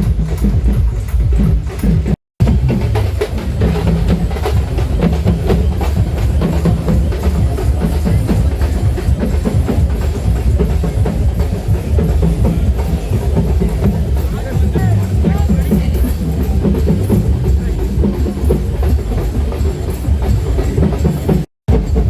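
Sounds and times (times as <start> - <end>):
drum-driven music with heavy bass: 0.0 - 22.0.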